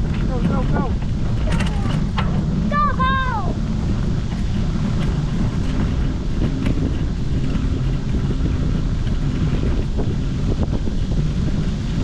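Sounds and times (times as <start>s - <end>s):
bicycle rolling noise: 0.0s - 12.0s
wind buffeting microphone: 0.0s - 12.0s.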